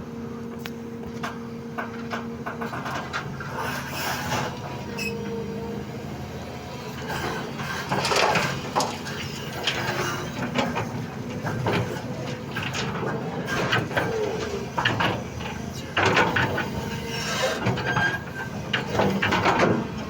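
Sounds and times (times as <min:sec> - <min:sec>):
excavator diesel engine running: 0:00.0 - 0:20.0
bucket clanking and scraping rock: 0:07.3 - 0:20.0.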